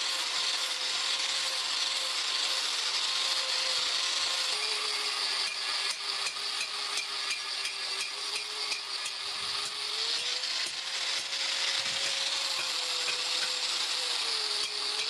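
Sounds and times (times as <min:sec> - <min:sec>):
electric grinder on steel: 0:00.0 - 0:15.0.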